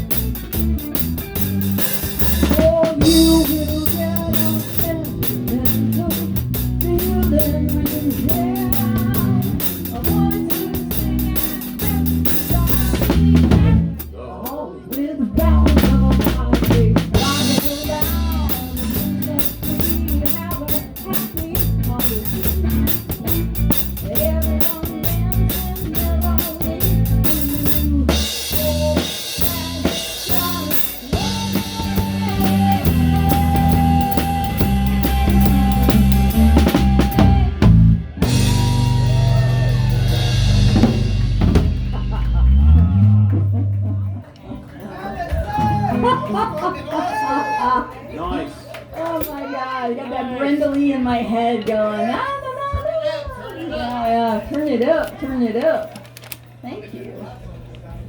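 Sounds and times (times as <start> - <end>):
bent lead guitar notes: 0.0 - 14.1, 15.4 - 44.7
electric bass line: 0.0 - 14.1, 15.4 - 44.5
cymbals: 0.0 - 14.2, 14.9 - 43.3
rock band playing: 0.0 - 14.2, 15.3 - 47.4.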